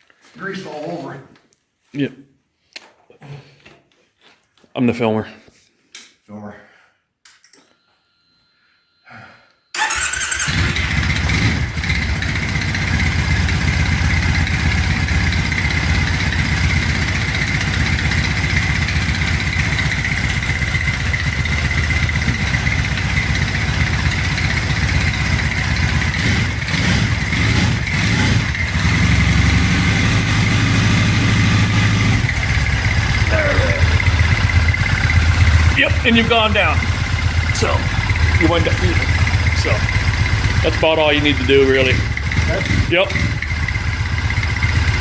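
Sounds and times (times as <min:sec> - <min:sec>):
motorcycle engine starting and idling: 0:09.7 - 0:45.0.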